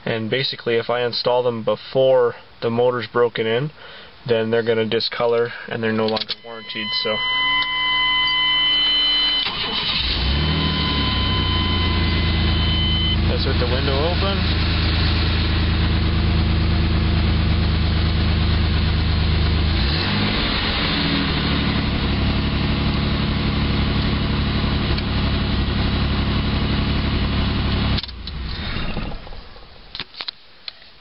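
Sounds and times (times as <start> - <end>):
engine running: 6.4 - 29.8.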